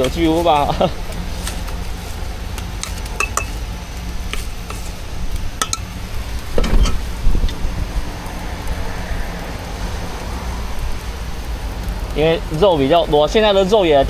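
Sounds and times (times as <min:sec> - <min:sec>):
steady low hum: 0:00.0 - 0:14.0
cooking utensils clinking: 0:00.7 - 0:03.7.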